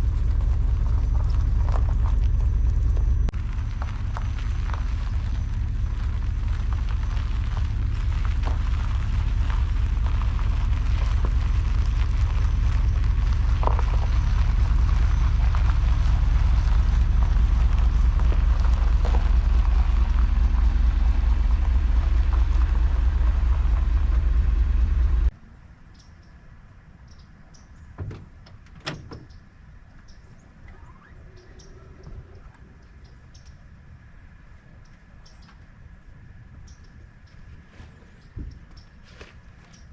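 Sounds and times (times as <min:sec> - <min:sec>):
van engine and road rumble: 0:00.0 - 0:39.9.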